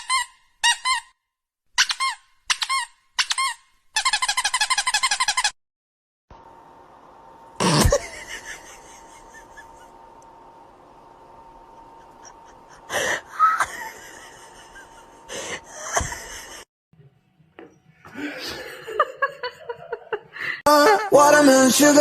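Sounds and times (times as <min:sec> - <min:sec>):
faint steady hum: 0:06.3 - 0:16.7.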